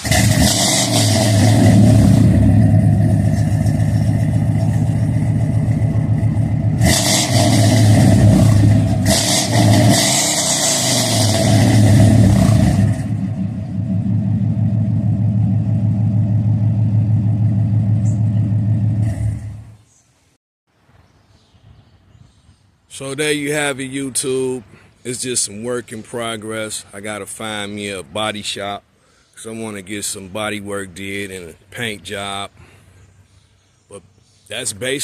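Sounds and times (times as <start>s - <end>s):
truck engine revving: 0.0s - 19.8s.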